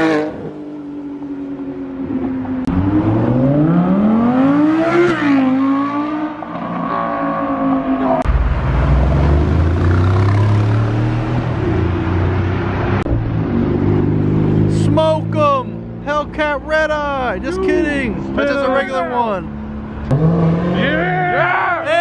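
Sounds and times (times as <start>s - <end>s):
car engine accelerating: 2.0s - 16.2s, 19.5s - 21.3s.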